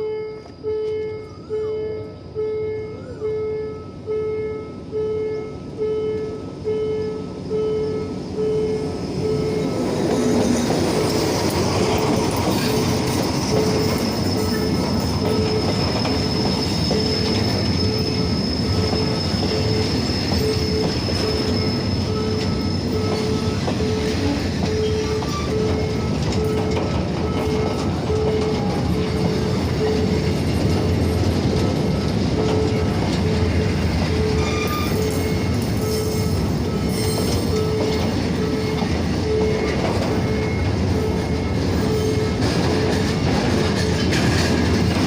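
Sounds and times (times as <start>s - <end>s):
train rumbling on tracks: 0.0s - 45.0s
high wheel squeal: 8.8s - 44.8s.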